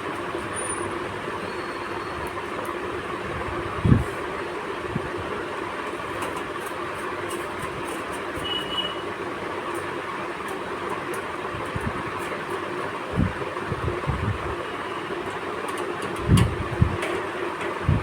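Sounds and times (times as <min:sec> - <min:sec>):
thin whistle-like tone: 0:01.4 - 0:02.2.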